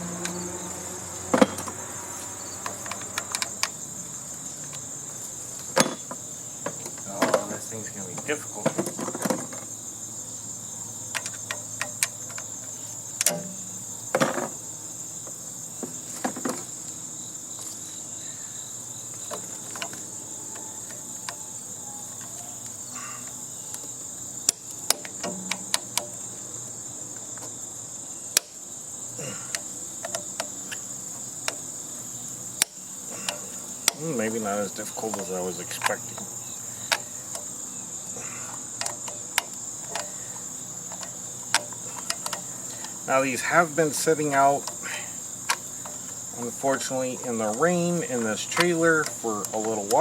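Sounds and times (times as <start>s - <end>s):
insect trill: 0.0s - 50.0s
hand tools clicking and knocking: 2.6s - 3.8s, 22.2s - 26.2s, 29.4s - 30.8s, 32.6s - 37.6s, 38.4s - 50.0s.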